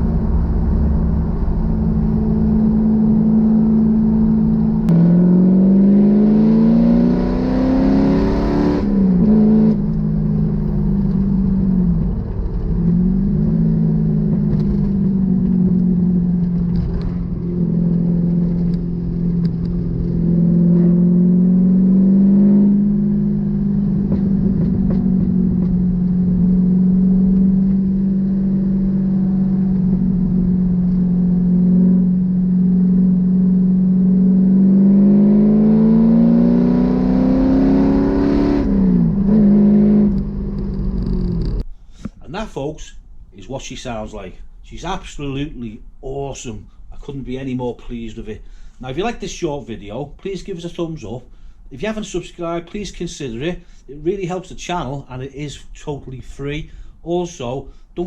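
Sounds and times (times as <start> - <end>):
car engine revving: 0.0 - 41.6.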